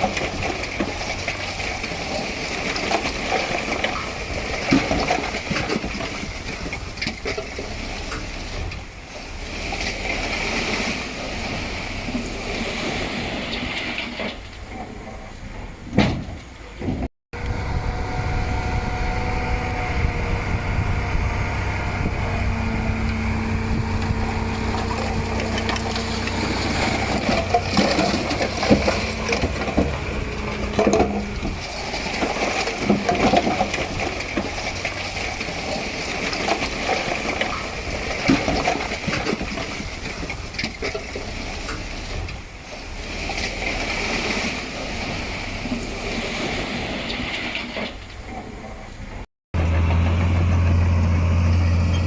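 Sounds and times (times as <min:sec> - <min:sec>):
diesel machinery engine drone: 0:17.3 - 0:39.0, 0:49.6 - 0:52.0
metal clanks and knocks: 0:23.1 - 0:35.0.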